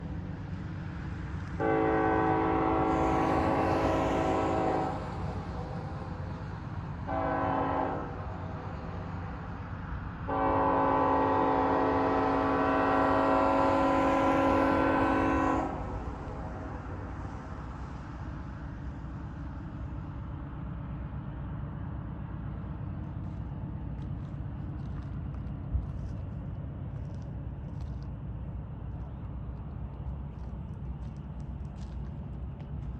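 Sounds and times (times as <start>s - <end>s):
low rumble of train: 0.0s - 32.9s
locomotive air horn blasts: 1.6s - 5.0s, 7.1s - 8.2s, 10.3s - 16.0s.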